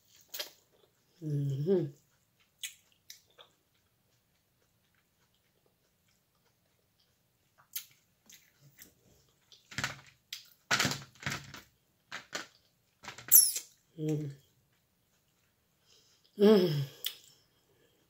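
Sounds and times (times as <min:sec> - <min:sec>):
person chewing and lip smacking: 0:00.0 - 0:01.2, 0:01.9 - 0:09.7, 0:17.0 - 0:17.5.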